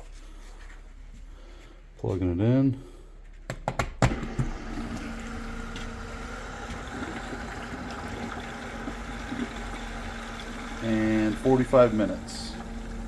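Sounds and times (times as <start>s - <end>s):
small pump humming: 4.1s - 13.0s.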